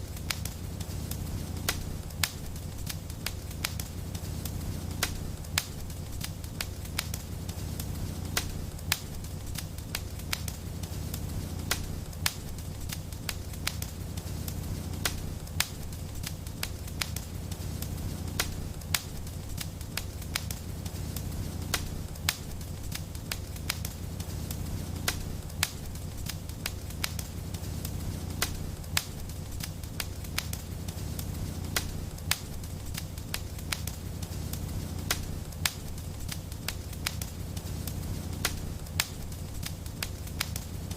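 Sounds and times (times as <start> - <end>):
wood fire crackling and popping: 0.0 - 40.9.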